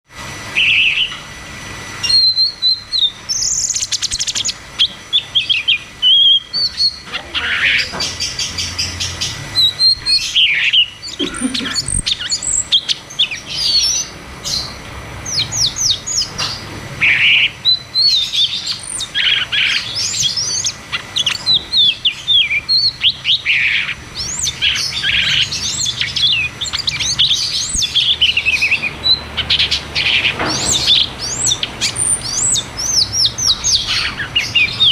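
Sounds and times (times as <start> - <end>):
bird singing fast chirps and whistles: 2.0 - 34.9.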